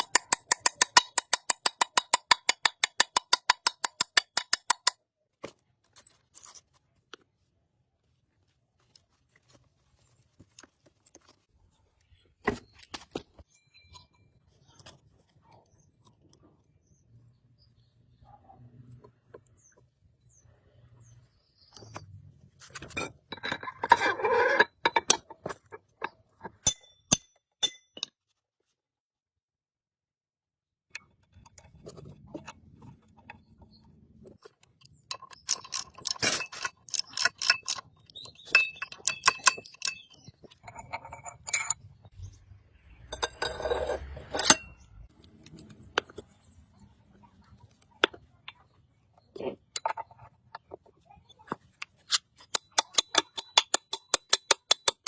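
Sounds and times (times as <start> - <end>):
tools clinking on metal: 34.8 - 42.1, 52.0 - 55.0.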